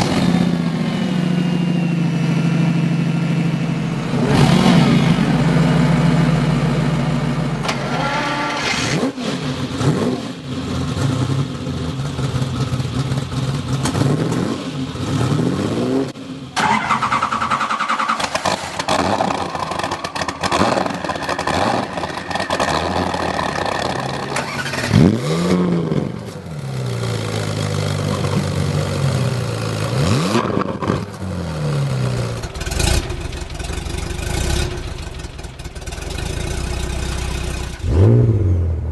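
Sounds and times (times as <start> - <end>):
car engine revving: 4.1 - 38.9.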